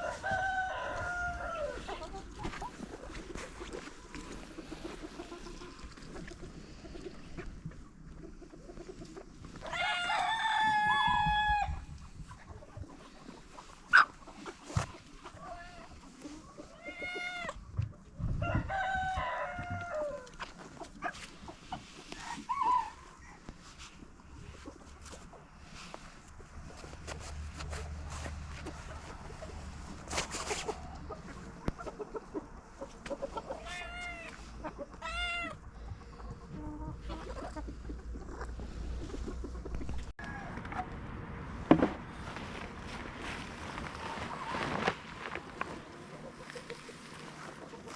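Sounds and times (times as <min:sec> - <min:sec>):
rooster crowing: 0:00.0 - 0:01.9, 0:09.7 - 0:11.8, 0:18.4 - 0:20.2
rustling and handling noises: 0:23.4 - 0:31.9, 0:41.7 - 0:47.9.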